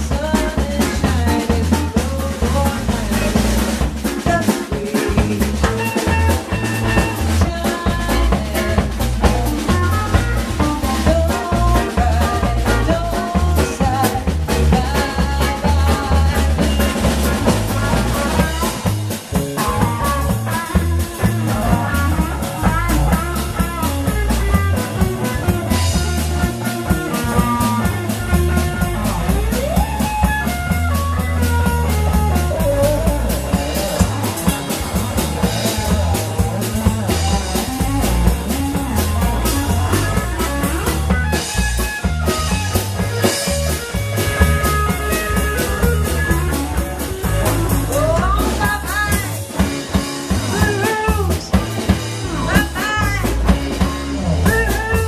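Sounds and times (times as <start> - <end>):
bass guitar: 0.0 - 55.0
drum kit: 0.0 - 55.0
electric guitar lead line: 0.0 - 55.0.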